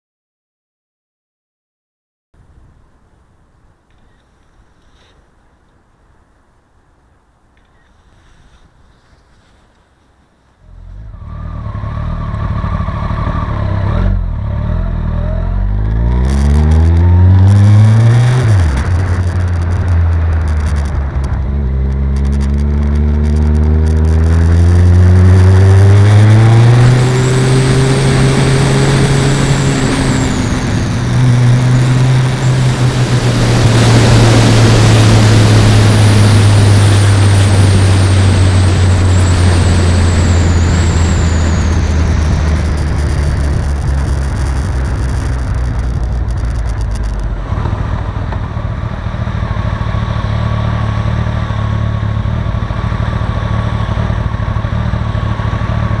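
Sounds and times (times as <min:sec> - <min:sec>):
motorcycle engine accelerating: 0:10.6 - 0:56.0
wind rush on microphone: 0:16.4 - 0:48.6.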